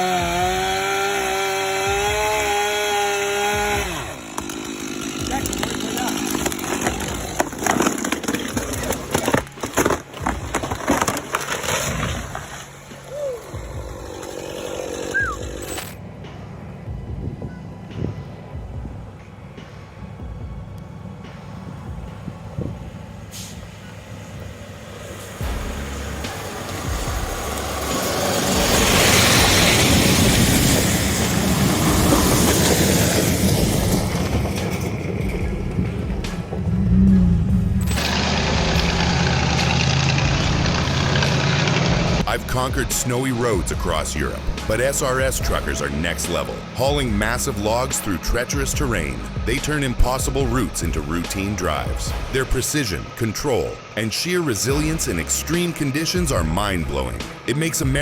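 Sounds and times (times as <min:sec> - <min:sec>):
wood cracking and splintering: 0:00.1 - 0:16.0
heavy machinery rumbling: 0:01.9 - 0:58.0
rushing noise: 0:21.2 - 0:42.3.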